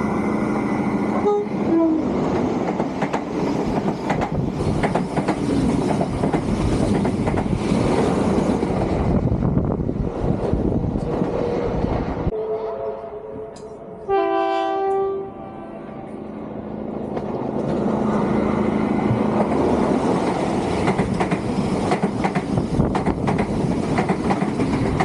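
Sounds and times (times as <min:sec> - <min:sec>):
passing train rushing: 0:00.0 - 0:25.0
train horn: 0:01.2 - 0:02.2, 0:12.3 - 0:16.4
wheels clicking over rail joints: 0:19.2 - 0:25.0.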